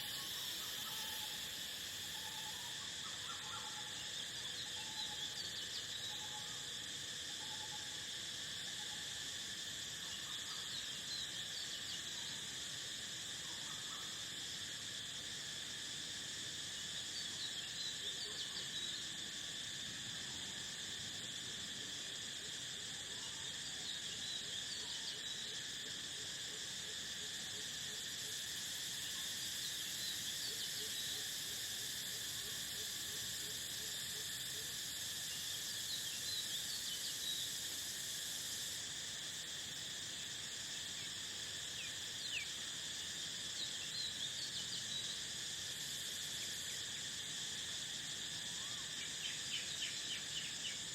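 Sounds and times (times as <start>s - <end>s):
crickets trilling: 0.0s - 50.9s.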